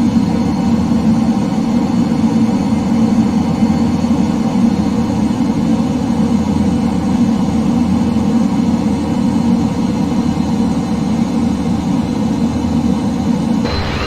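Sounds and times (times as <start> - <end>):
jet engines droning: 13.6 - 14.0.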